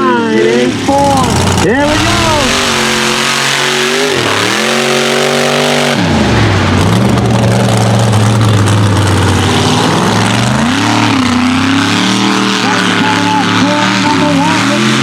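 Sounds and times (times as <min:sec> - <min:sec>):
truck engine revving hard: 0:00.1 - 0:15.0.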